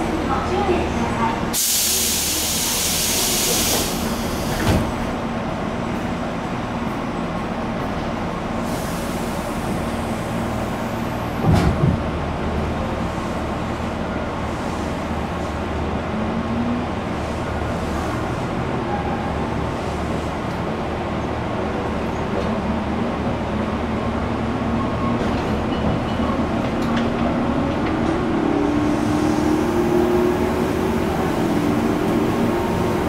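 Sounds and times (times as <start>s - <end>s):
train car low rumble: 0.0s - 33.0s
air hiss of train doors: 1.5s - 5.1s, 8.6s - 10.7s.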